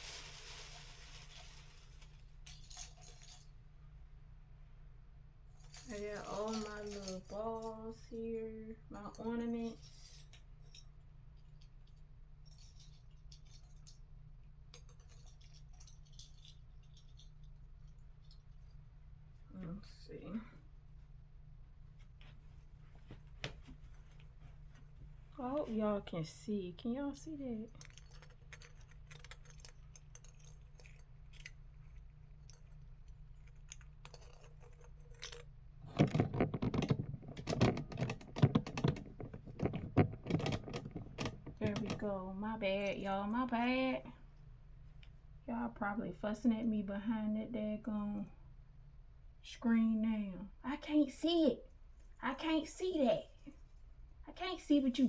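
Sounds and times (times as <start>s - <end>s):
ornaments clicking and rattling: 0.6s - 3.6s, 5.6s - 8.0s, 8.9s - 18.8s, 27.7s - 42.1s
tapping and clattering on microphone: 35.9s - 42.1s.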